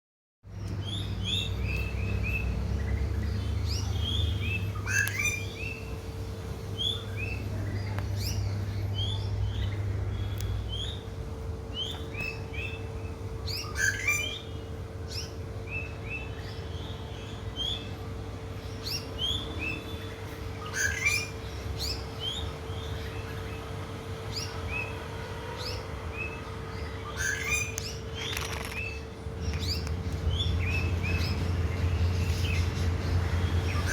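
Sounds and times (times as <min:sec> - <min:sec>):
small birds chirping: 0:00.5 - 0:33.9
steady low hum: 0:00.5 - 0:33.9.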